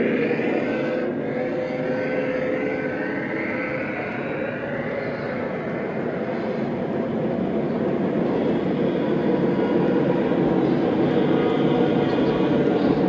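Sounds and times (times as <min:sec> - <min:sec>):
model train running on track: 0:00.0 - 0:13.0.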